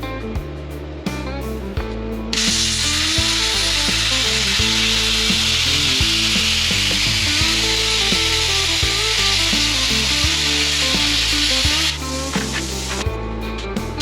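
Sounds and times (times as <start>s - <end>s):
background music: 0.0s - 14.0s
plasma cutter hissing: 2.4s - 13.1s.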